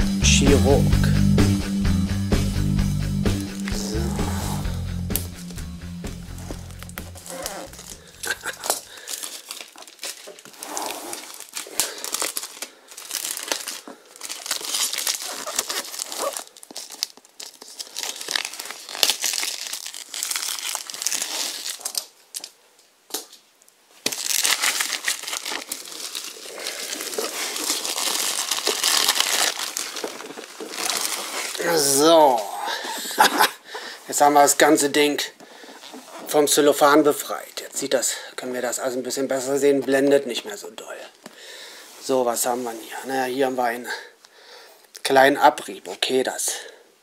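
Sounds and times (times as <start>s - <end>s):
shrink-wrap crinkling and tearing: 6.5s - 22.6s, 23.9s - 33.4s.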